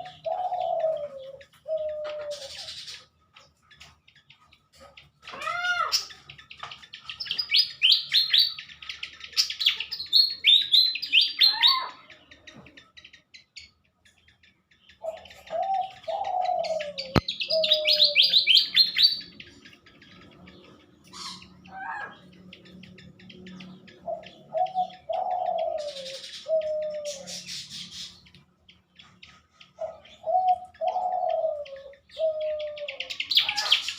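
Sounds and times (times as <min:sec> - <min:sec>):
lower falling bird calls: 0:15.0 - 0:22.4.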